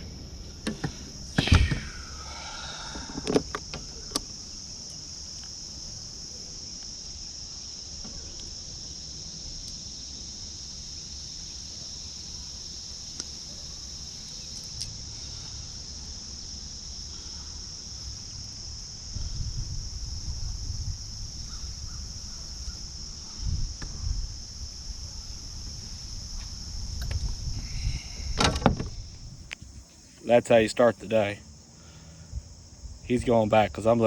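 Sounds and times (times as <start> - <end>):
crickets chirping: 0.0 - 34.0.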